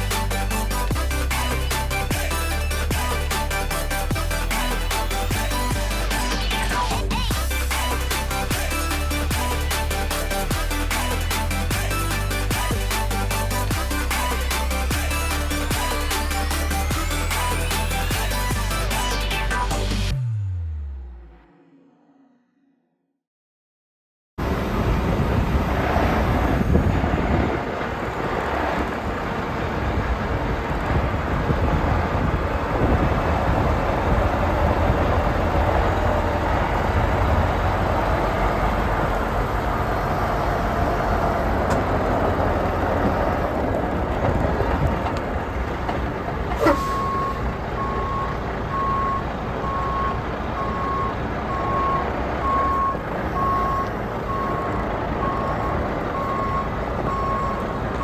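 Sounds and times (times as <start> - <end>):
truck engine rumble: 0.0 - 21.4, 24.4 - 58.0
reversing alarm beeping: 46.5 - 58.0.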